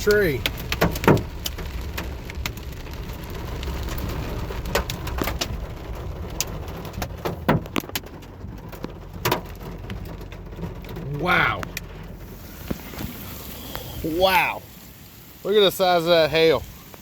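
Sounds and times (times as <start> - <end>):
steady low rumble: 0.0 - 15.8
hailstones knocking on truck: 0.1 - 11.8.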